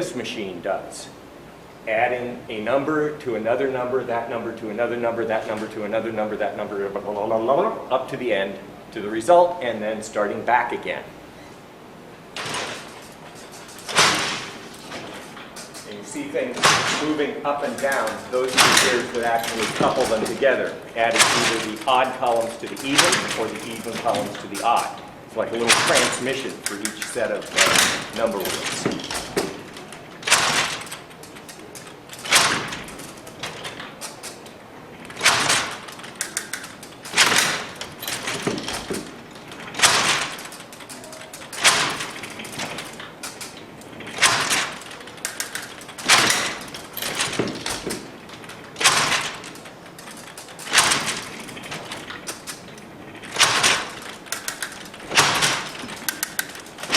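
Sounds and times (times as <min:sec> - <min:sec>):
mechanical calculator clattering: 0:11.4 - 0:56.9
loud mechanical clack: 0:12.2 - 0:56.9.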